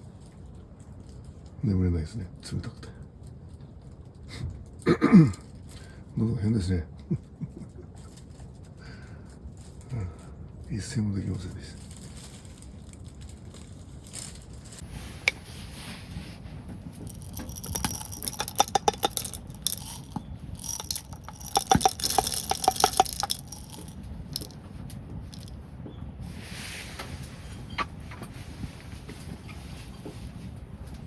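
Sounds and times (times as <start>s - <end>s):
small hard objects clinking: 11.8s - 25.6s.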